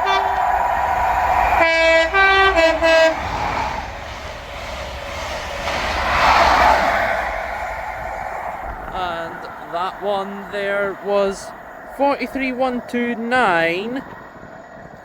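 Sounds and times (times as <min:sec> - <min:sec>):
two-tone train horn: 0:00.0 - 0:00.5, 0:01.6 - 0:03.3
passing train rushing: 0:00.0 - 0:15.0.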